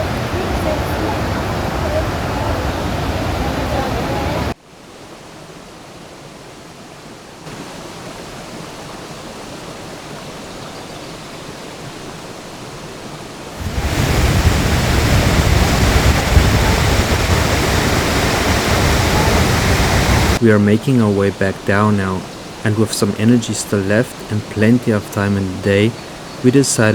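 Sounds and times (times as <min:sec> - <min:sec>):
waterfall rushing: 0:00.0 - 0:04.6, 0:11.8 - 0:26.9.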